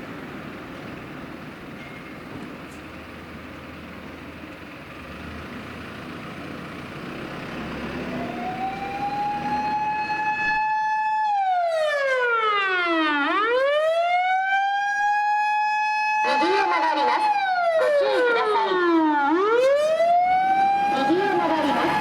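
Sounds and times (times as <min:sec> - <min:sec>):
truck road and engine noise: 0:00.0 - 0:22.0
fire engine siren wailing: 0:07.4 - 0:22.0.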